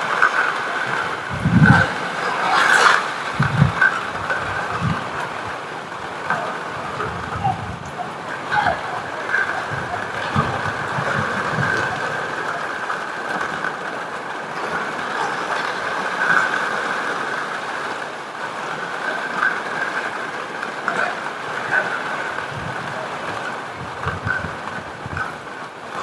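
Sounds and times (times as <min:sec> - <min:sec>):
heavy rain: 0:00.0 - 0:26.0
wood fire crackling: 0:00.0 - 0:26.0.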